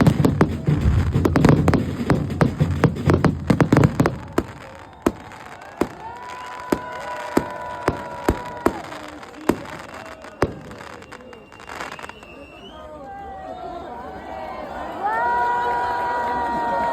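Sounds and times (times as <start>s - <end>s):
sharp firework reports: 0.0s - 12.4s
fireworks bangs and crackles: 0.0s - 12.5s
steady whistle-like tone: 4.2s - 6.7s, 10.0s - 12.9s.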